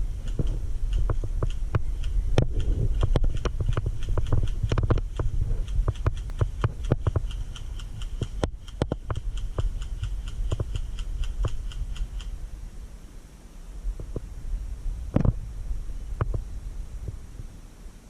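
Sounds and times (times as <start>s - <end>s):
high-pitched ticking: 0.0s - 12.4s
low rumble: 0.0s - 18.0s
sharp clicks and knocks: 0.2s - 12.4s.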